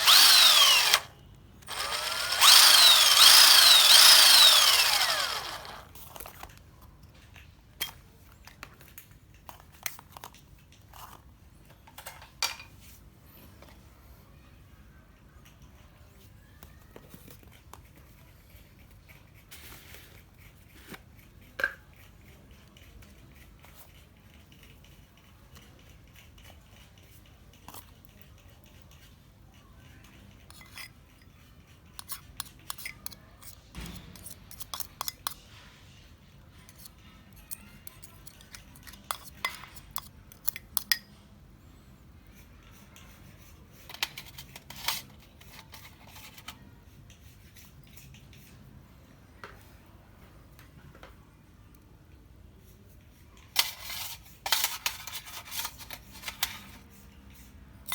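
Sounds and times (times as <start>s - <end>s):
hand tools clicking and clinking: 0.0s - 5.9s, 31.9s - 35.4s, 37.5s - 41.1s.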